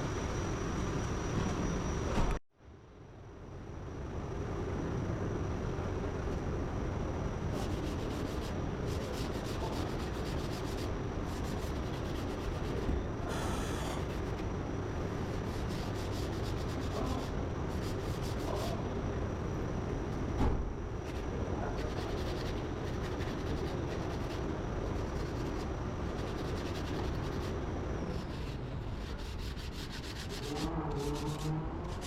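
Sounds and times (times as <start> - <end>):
sanding scrubbing: 7.5 - 12.9, 15.2 - 18.8, 21.8 - 32.0.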